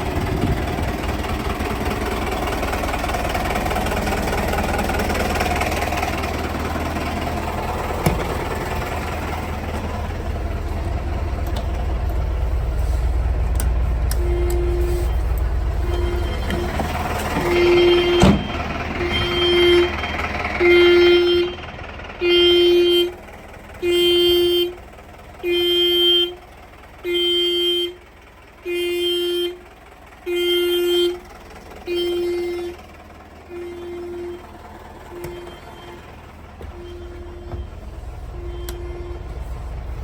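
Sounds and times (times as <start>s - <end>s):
fire truck horn blasts: 14.1s - 20.0s, 20.6s - 23.2s, 23.8s - 24.8s, 25.4s - 26.4s, 27.0s - 28.0s, 28.6s - 29.6s, 30.2s - 31.2s, 31.8s - 32.8s, 33.5s - 39.9s.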